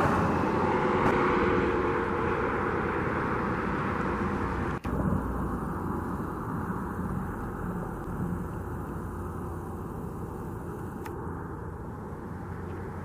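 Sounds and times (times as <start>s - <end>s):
distant engine rumble: 0.0s - 13.0s.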